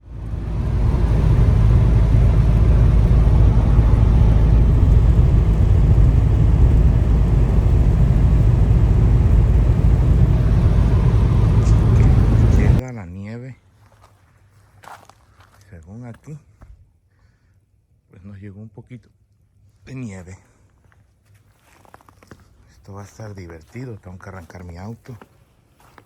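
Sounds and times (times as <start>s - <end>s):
car engine rumble: 0.0s - 12.8s.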